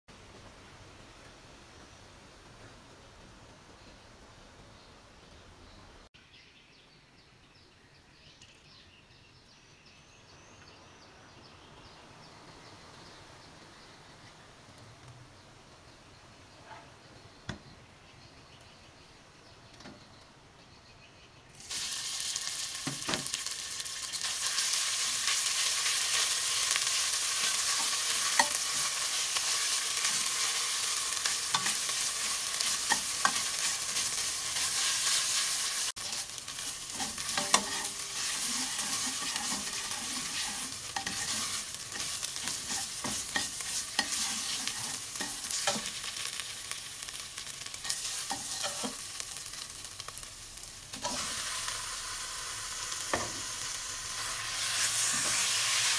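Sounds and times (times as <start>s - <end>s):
curry paste sizzling in oil: 21.5s - 55.9s
metal ladle scraping a pot: 36.9s - 45.9s.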